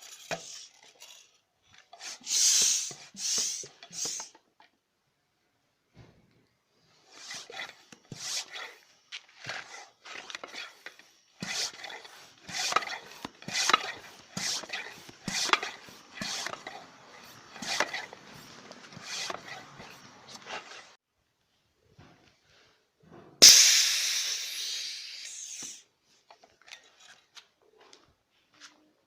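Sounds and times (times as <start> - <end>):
hand tool rasping material: 7.1 - 21.0.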